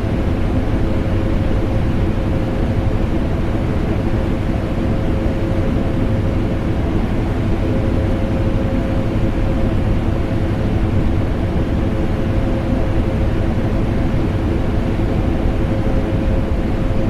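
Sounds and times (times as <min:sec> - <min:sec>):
air-conditioner hum: 0:00.0 - 0:17.0.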